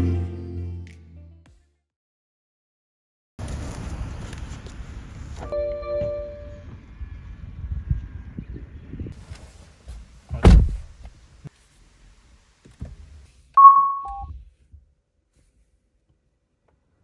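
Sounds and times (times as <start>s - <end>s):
car door shutting: 10.3s - 10.9s
two-tone electronic chime: 13.6s - 14.2s.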